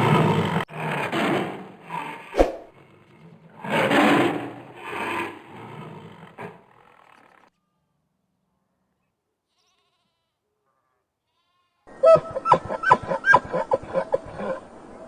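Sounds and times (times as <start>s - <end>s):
goat bleating: 9.5s - 11.9s.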